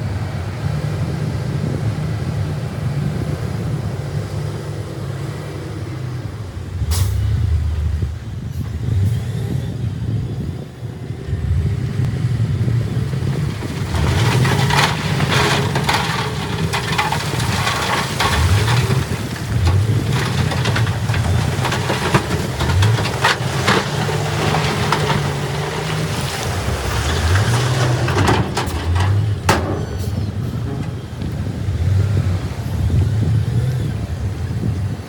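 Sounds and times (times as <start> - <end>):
heavy diesel machine engine revving: 12.1 - 34.0
clattering and knocks: 12.8 - 32.4.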